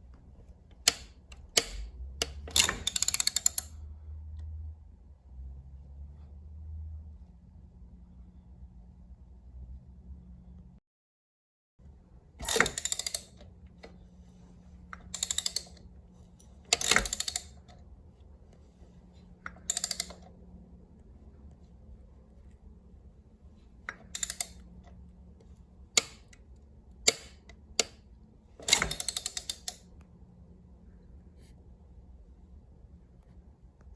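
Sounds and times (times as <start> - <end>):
metallic clicking and clacks: 15.0 - 15.8, 16.7 - 17.8, 28.6 - 29.8.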